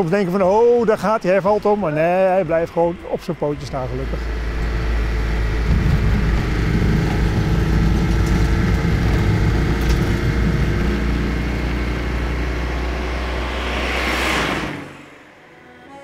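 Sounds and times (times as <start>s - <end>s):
van engine running: 0.0s - 15.1s.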